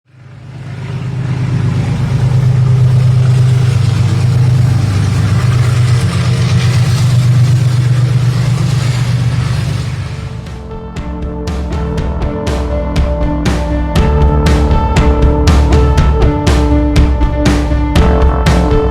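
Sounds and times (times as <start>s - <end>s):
locomotive engine drone: 0.0s - 18.9s
train wheels on rails: 0.1s - 10.7s.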